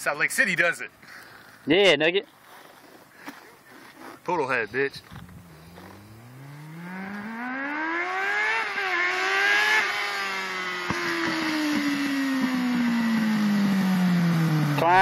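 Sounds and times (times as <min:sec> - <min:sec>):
motorcycle engine revving hard: 0:05.4 - 0:15.0.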